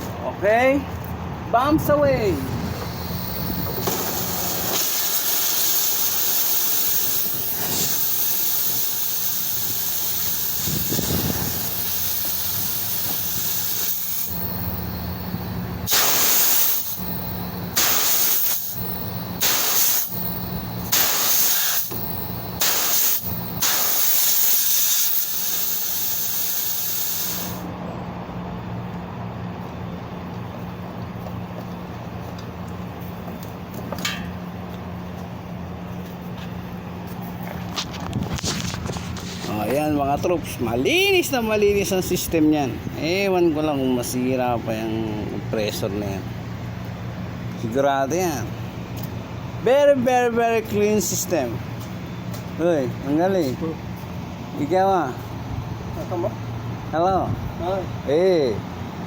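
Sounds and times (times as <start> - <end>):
pressurized gas hissing: 2.6 - 27.7.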